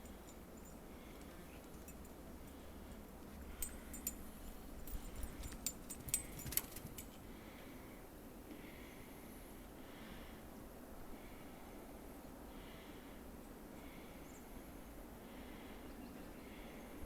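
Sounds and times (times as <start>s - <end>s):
sharp light ticks and clinks: 0.0s - 7.3s.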